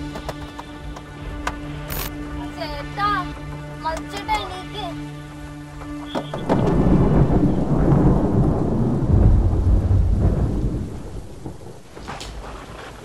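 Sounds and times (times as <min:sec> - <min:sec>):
steady rain: 0:00.0 - 0:13.0
thunder rumbling: 0:06.3 - 0:13.0.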